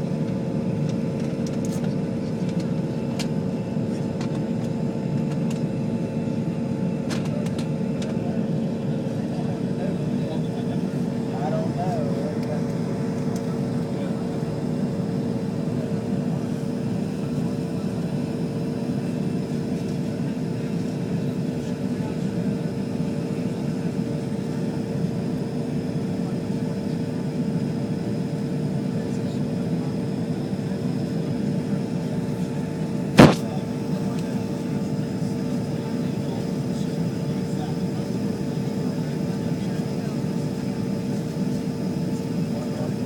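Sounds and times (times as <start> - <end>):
airplane cabin engine drone: 0.0 - 43.0
steady hum: 31.1 - 37.0
sharp knock: 33.2 - 33.5.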